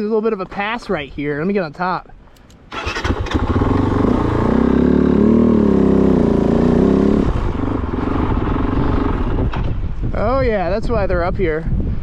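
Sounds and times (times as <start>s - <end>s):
motorcycle engine under throttle: 2.4s - 9.8s.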